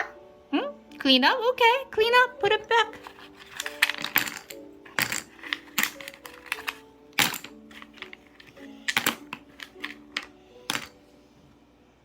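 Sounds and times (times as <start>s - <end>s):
soft background melody: 0.0s - 12.0s
puzzle pieces clattering: 3.0s - 11.0s.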